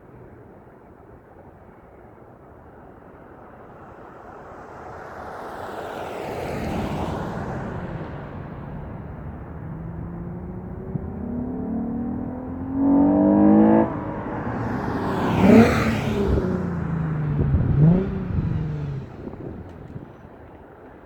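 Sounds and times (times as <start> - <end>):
car engine revving: 6.6 - 20.3.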